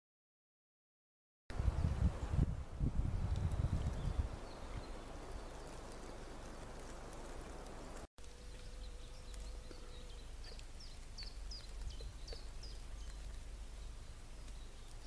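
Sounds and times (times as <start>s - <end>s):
wind rumble on microphone: 1.5s - 5.6s
songbird calling: 3.4s - 15.0s.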